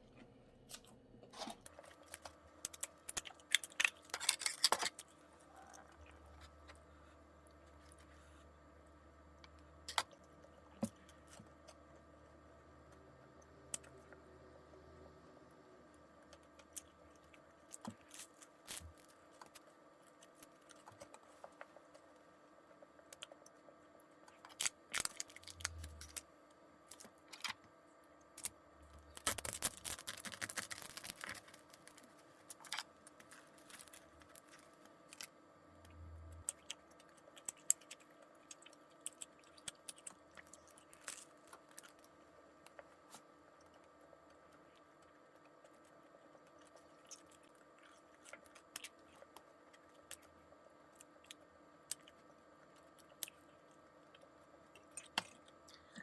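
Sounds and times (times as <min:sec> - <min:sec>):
bread tearing and crackling: 0:24.4 - 0:26.2, 0:28.4 - 0:35.3.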